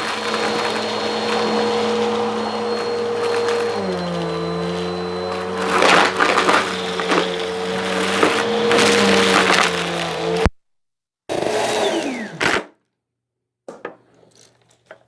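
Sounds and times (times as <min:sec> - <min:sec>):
rattling and crunching in vacuum: 0:00.0 - 0:10.5
vacuum cleaner motor whine: 0:00.0 - 0:10.5.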